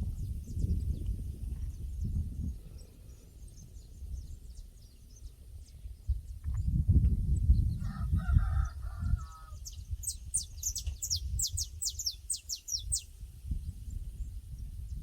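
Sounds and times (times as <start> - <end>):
songbird chirping: 0.2 - 14.8
faint rooster crowing: 7.8 - 9.8.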